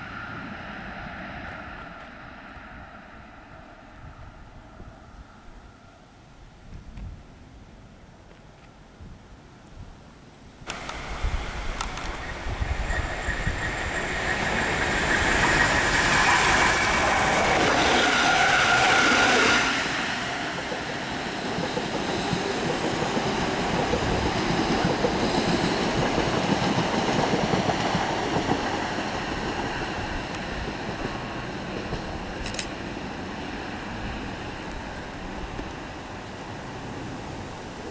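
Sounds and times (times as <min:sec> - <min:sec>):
high train whine: 0:00.0 - 0:08.2, 0:10.7 - 0:37.9
train wheels clattering on rails: 0:10.7 - 0:33.5.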